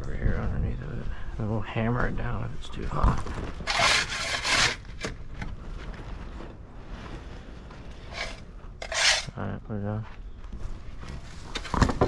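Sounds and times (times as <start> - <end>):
shovel scuffing: 3.6 - 4.8, 8.1 - 9.3
shovel scraping loose rock: 3.6 - 5.2, 8.0 - 9.4.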